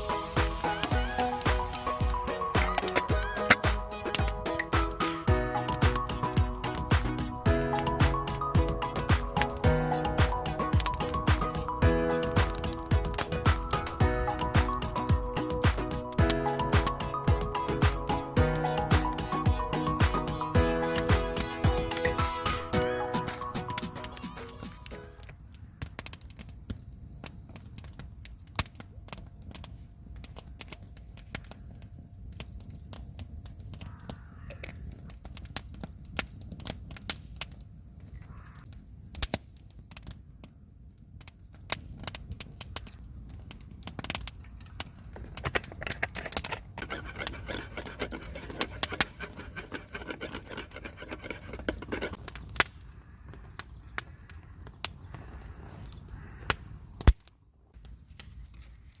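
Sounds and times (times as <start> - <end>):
wood fire crackling: 0.0 - 34.1, 38.6 - 59.0
low rumble of fire: 25.3 - 46.9.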